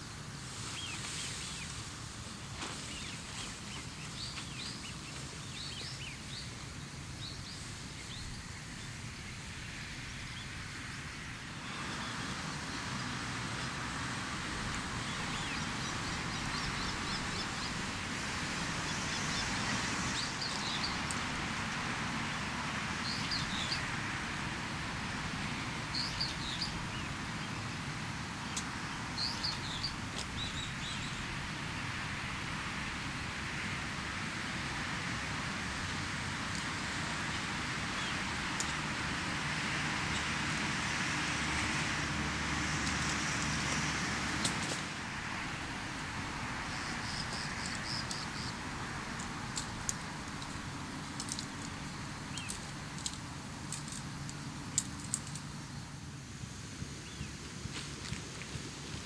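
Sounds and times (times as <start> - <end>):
steady hiss: 0.0 - 59.0
small birds chirping: 2.6 - 10.6, 14.5 - 24.2, 25.5 - 31.4, 35.9 - 40.4, 45.5 - 55.6.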